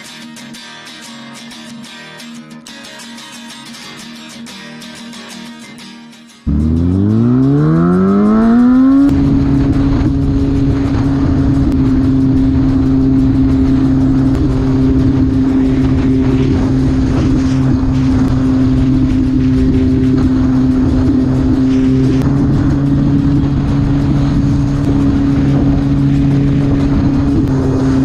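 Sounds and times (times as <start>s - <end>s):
motorcycle engine revving: 6.5s - 28.0s.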